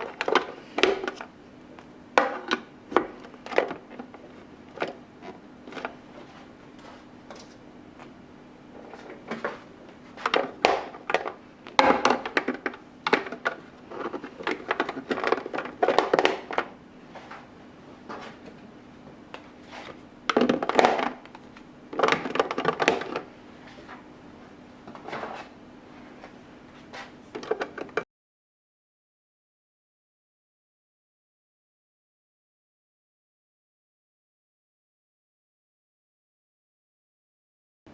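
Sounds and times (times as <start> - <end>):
plastic containers knocking and clattering: 0.0 - 1.3, 2.2 - 6.0, 8.8 - 24.0, 27.3 - 28.0
faint steady hum: 0.0 - 28.0.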